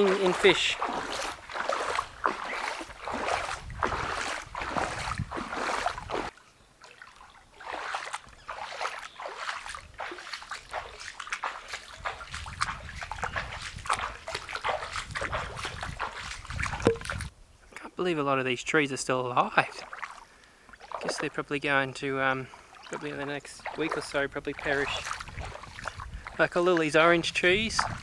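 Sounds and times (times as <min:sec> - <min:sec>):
footsteps splashing through water: 0:00.0 - 0:17.3, 0:19.6 - 0:28.0.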